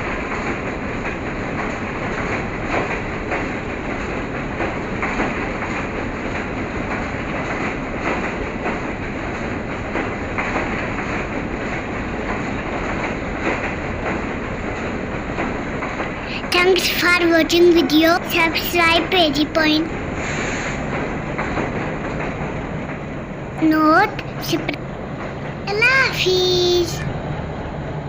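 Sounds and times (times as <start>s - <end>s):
wheels clacking over rail joints: 0.0s - 20.2s
train rumbling along track: 0.0s - 28.0s.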